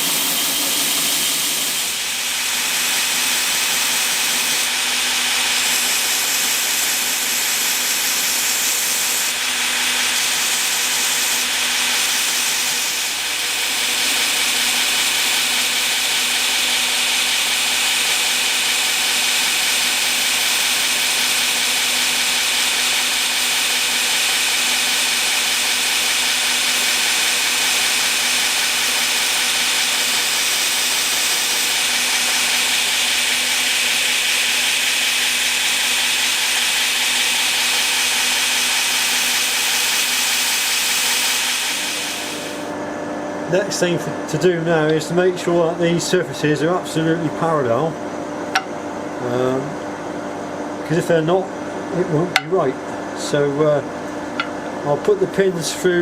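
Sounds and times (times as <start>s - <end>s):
grinder hissing grind: 0.0s - 42.8s, 48.5s - 49.6s, 52.0s - 52.8s
machine hum: 0.0s - 44.3s.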